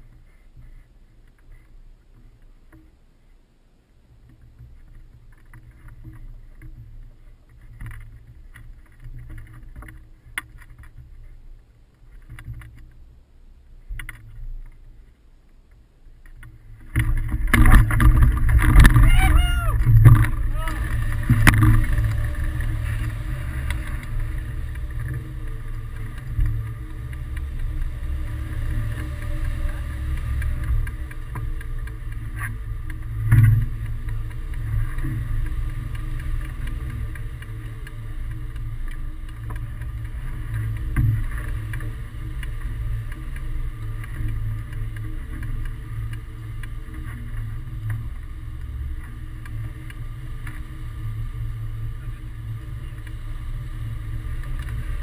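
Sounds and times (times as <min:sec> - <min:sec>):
wind buffets: 0:16.3 - 0:46.5
wind rushing over microphone: 0:17.0 - 0:43.1.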